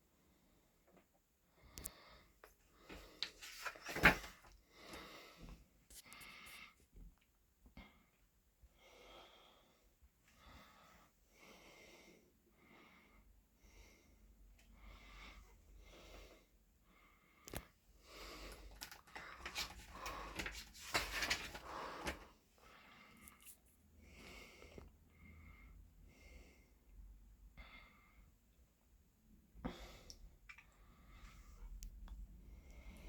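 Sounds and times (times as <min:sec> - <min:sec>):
paper pages rustling: 0:03.2 - 0:04.5, 0:18.7 - 0:22.2
breathing close to microphone: 0:04.6 - 0:06.8, 0:08.8 - 0:26.9, 0:29.6 - 0:33.0.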